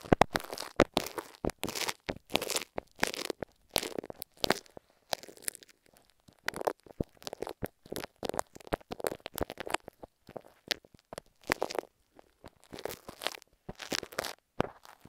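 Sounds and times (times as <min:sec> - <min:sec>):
glue stick sticky crackles: 0:00.0 - 0:15.0.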